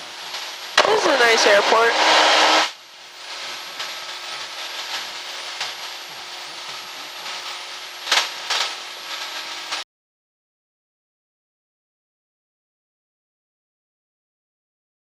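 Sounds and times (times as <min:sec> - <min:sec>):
small plane engine drone in cabin: 0:00.0 - 0:09.8.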